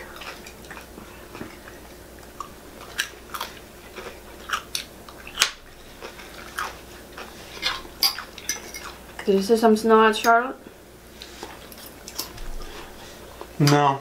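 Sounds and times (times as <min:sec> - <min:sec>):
person chewing food: 0:00.0 - 0:09.2, 0:11.1 - 0:13.6.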